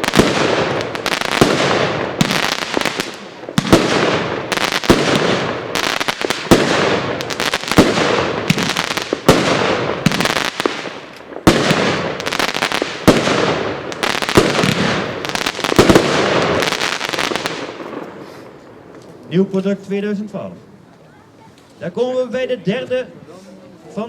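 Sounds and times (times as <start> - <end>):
fireworks cake firing shots: 0.0 - 18.2
sharp firework bangs: 0.0 - 18.5.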